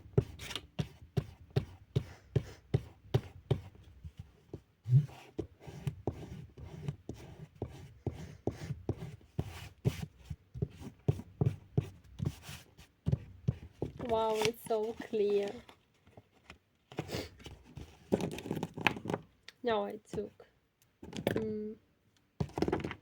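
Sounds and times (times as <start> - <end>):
pen scratching on paper: 4.9 - 14.3.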